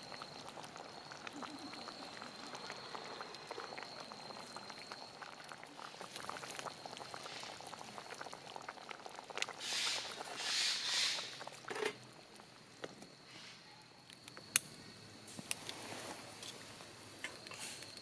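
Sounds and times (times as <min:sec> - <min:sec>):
pot bubbling: 0:00.0 - 0:13.2
campfire crackles: 0:00.0 - 0:18.0.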